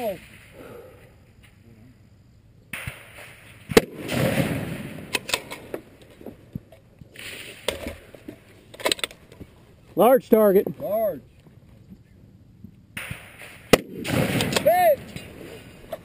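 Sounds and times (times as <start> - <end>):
rifle shot: 2.7 - 5.8, 13.0 - 15.3.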